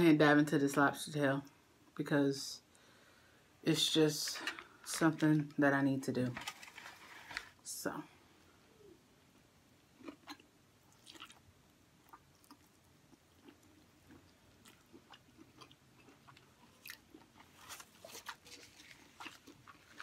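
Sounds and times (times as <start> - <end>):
faint close-up chewing: 9.9 - 20.0.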